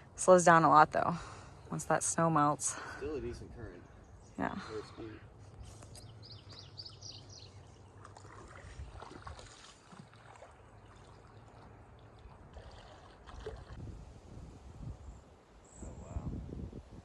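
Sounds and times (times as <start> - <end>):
creek water splashing: 4.7 - 13.9.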